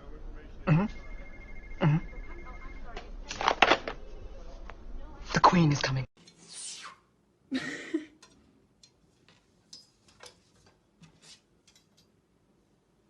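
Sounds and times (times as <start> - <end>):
short hissy bursts: 6.4 - 7.1.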